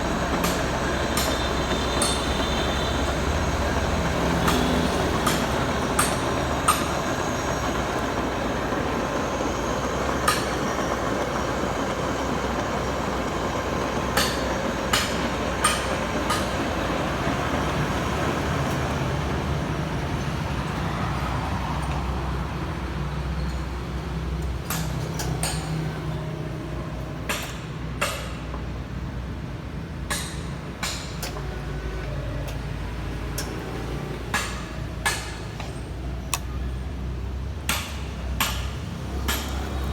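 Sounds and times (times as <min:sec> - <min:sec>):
drill machine humming: 0:00.0 - 0:22.6.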